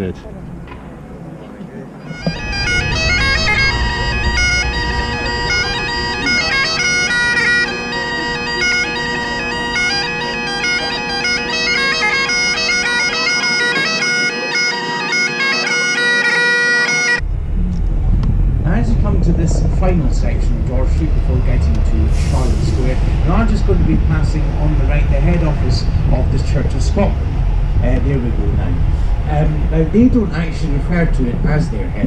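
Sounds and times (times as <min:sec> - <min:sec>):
bagpipes playing a tune: 0:02.1 - 0:17.2, 0:20.3 - 0:27.4.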